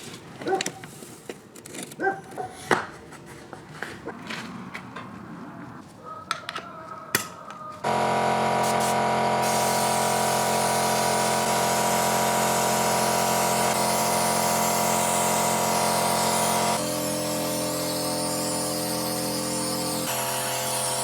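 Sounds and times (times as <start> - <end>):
power tool motor whining: 7.8 - 21.0.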